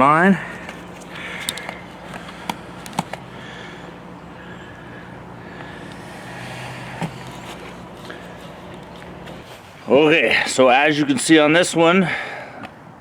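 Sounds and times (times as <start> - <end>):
low motor hum: 0.0 - 9.9
sharp clicks: 0.6 - 3.3.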